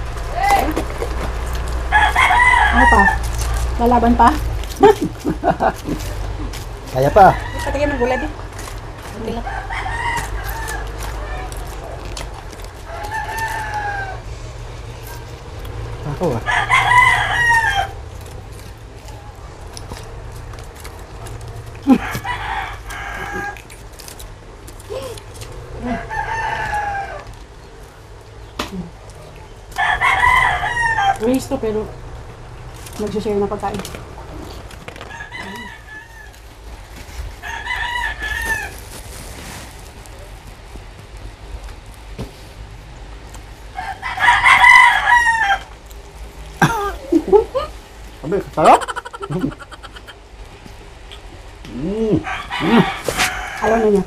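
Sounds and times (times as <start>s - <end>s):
rooster crowing: 1.8s - 3.7s, 6.9s - 8.5s, 9.2s - 11.5s, 12.8s - 14.5s, 16.2s - 18.1s, 21.8s - 23.7s, 25.8s - 27.4s, 29.7s - 31.5s, 35.0s - 36.6s, 37.3s - 38.8s, 43.7s - 45.8s, 52.1s - 54.0s.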